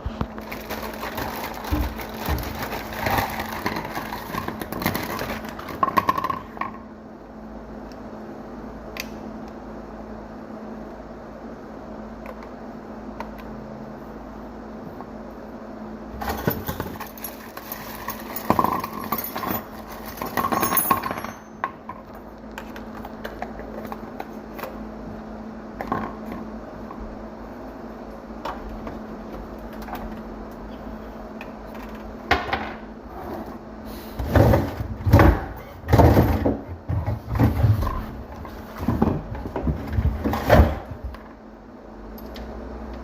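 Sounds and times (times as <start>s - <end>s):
steady low hum: 0.0s - 43.0s
metal tools clinking and rattling: 16.2s - 21.8s.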